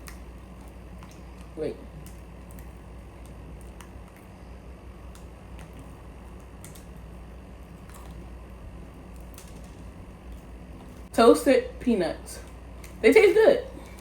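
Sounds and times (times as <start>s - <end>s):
steady low hum: 0.0s - 14.0s
peanuts crunching while chewed: 5.0s - 11.1s.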